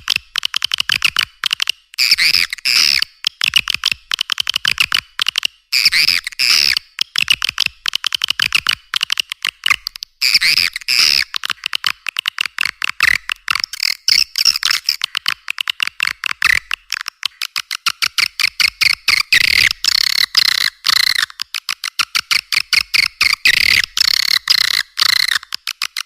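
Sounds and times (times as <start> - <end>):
clicking chirps of swiftlets: 12.6 - 26.0.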